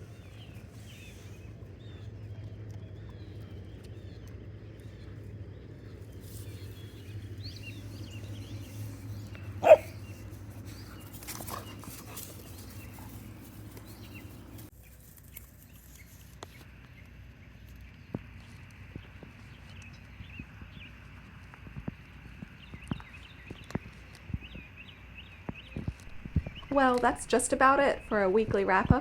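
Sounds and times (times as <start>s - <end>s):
low hum: 0.0s - 29.0s
small birds chirping: 0.0s - 29.0s
puppy barking: 9.6s - 10.0s.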